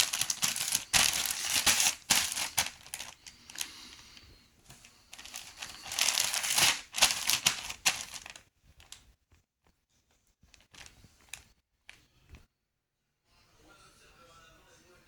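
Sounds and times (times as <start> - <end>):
packaging crinkling and tearing: 0.0 - 4.0, 4.7 - 9.0, 10.6 - 11.5.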